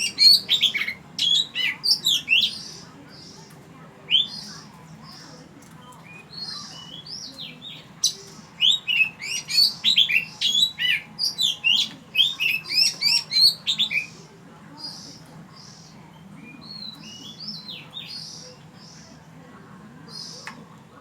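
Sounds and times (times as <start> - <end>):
magpie-robin singing whistled notes: 0.0 - 3.3, 4.1 - 4.6, 6.1 - 14.2, 16.5 - 18.9.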